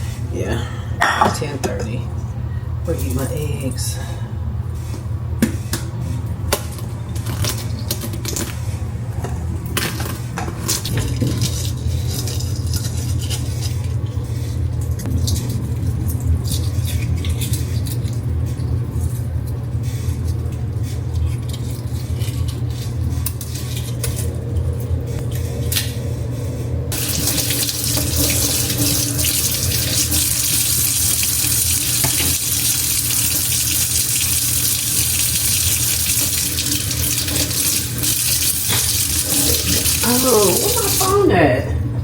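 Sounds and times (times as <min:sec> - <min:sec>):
steady low hum: 0:00.0 - 0:42.0
dishes and cutlery clinking: 0:01.0 - 0:02.0.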